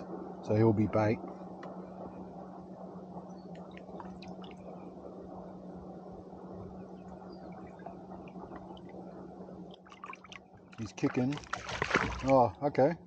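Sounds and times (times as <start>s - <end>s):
steady low hum: 0.0s - 13.0s
water splashing around kayak: 9.7s - 12.6s.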